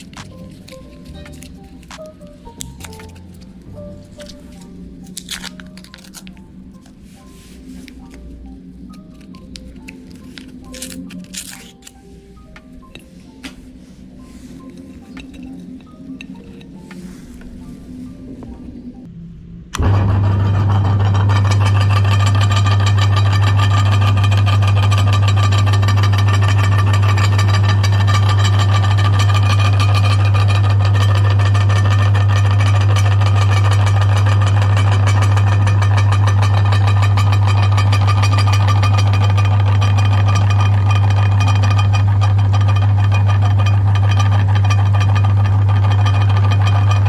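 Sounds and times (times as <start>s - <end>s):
meat grinder motor humming: 19.8s - 47.0s.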